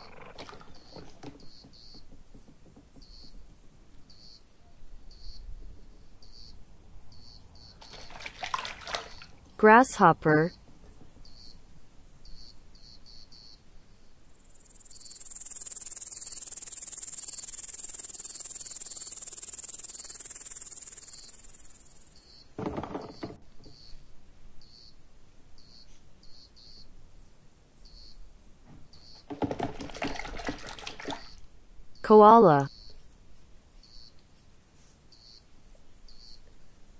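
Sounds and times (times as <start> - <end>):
water splashing: 0.0 - 1.6, 7.8 - 9.6, 29.3 - 31.4
grasshopper chirping: 14.4 - 23.2
loud high insect buzz: 14.6 - 23.2.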